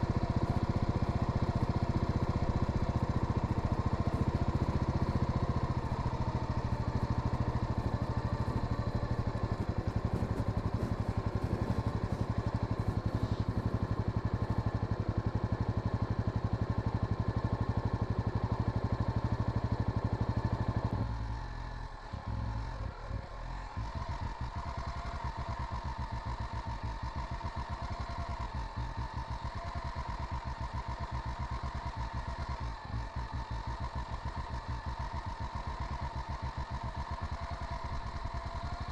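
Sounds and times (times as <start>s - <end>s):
motorcycle engine running: 0.0s - 21.6s, 23.6s - 38.9s.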